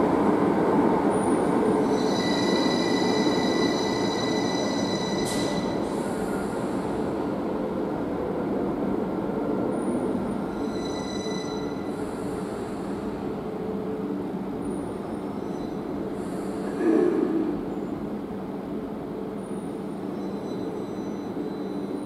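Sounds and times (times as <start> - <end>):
train rumbling: 0.0 - 22.0
high-pitched wheel squeals: 1.8 - 5.8, 10.5 - 11.9, 15.4 - 15.8, 20.2 - 22.0.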